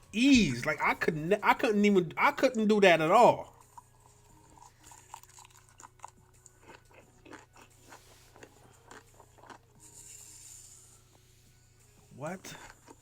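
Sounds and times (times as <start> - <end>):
person chewing: 3.5 - 10.8, 12.6 - 13.0.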